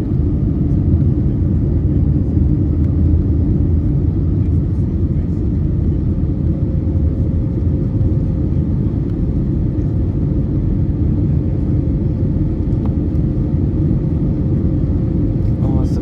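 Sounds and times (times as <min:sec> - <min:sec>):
aircraft cabin engine rumble: 0:00.0 - 0:16.0.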